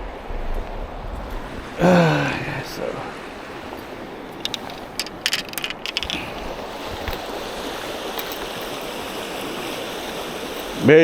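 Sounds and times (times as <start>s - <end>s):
river water rushing: 0.0s - 11.0s
sharp clicks and rustles: 3.7s - 7.4s.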